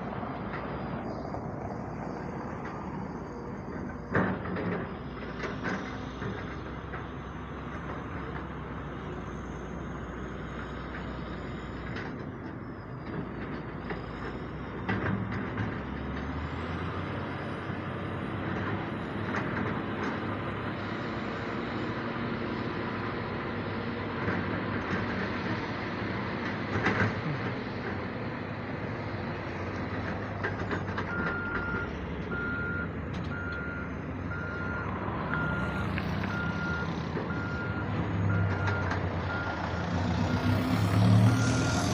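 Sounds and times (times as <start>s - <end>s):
diesel excavator and truck running: 0.0s - 41.9s
reversing alarm beeping: 31.1s - 39.6s, 40.3s - 41.9s.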